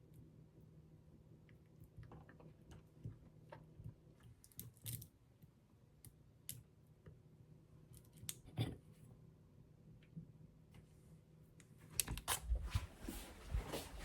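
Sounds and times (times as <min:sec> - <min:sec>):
soft rustles of small objects: 0:10.8 - 0:14.0.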